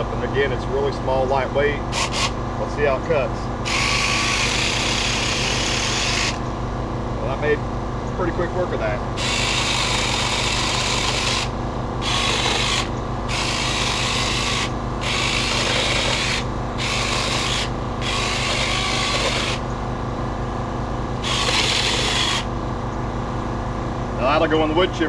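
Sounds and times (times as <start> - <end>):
steady low hum: 0.0 - 25.0
mini chainsaw cutting branches: 1.9 - 2.4, 3.6 - 6.4, 9.2 - 19.7, 21.2 - 22.5.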